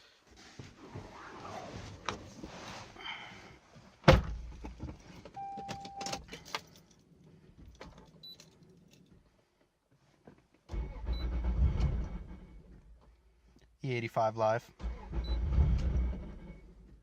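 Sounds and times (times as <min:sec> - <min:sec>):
car door shutting: 0:04.0 - 0:04.7
keys jangling and clicking: 0:06.0 - 0:09.2.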